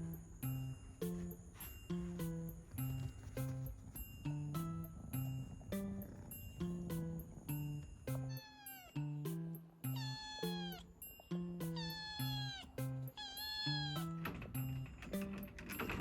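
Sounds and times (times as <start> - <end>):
background music with plucked notes: 0.0 - 16.0
cat meowing: 8.2 - 9.0, 9.9 - 11.0, 11.7 - 14.2.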